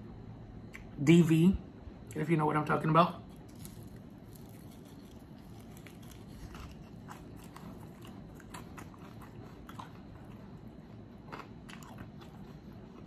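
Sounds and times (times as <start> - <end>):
person chewing crispy food: 3.3 - 13.0.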